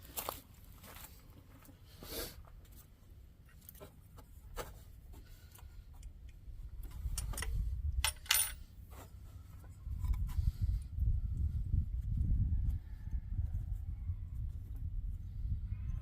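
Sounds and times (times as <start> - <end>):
metal tools clinking: 7.0 - 8.7.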